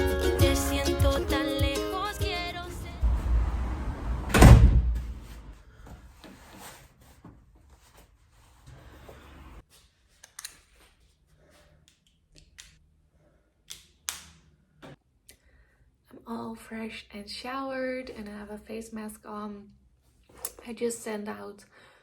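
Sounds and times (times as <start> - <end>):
loud knock: 4.3 - 5.2.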